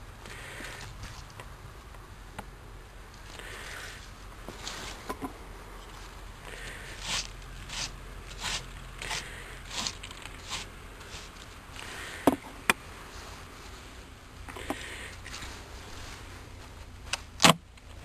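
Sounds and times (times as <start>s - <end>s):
short scraping strokes: 5.9s - 12.4s.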